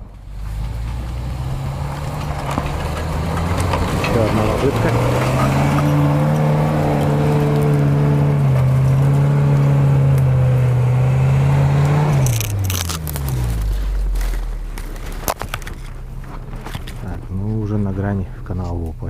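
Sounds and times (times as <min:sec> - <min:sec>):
sharp exhaust cracks: 0:00.0 - 0:19.0
engine revving high: 0:00.3 - 0:15.3.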